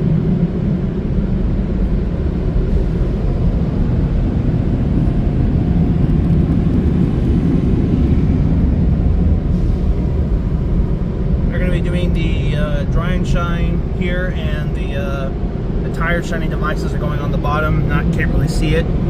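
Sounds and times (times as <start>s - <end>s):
car wash equipment rumbling: 0.0s - 19.0s.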